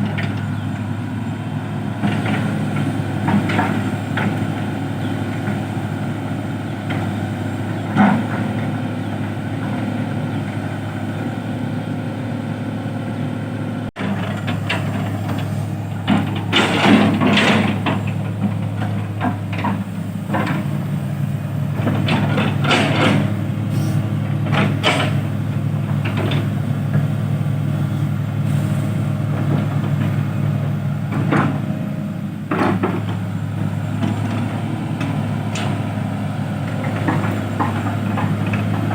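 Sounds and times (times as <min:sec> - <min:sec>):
heavy truck engine running: 0:00.0 - 0:38.9
metallic clanks and knocks: 0:14.0 - 0:20.8, 0:21.8 - 0:23.4, 0:24.4 - 0:25.3.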